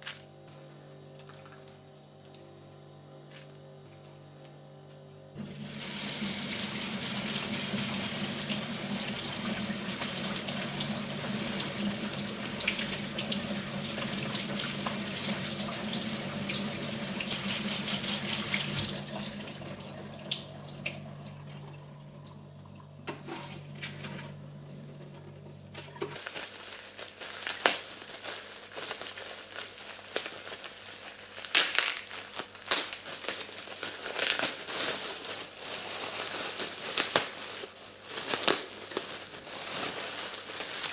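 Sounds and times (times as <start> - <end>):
low steady hum: 0.0 - 29.4
tap running into sink: 9.0 - 21.8
crinkling and handling sounds: 25.7 - 40.9.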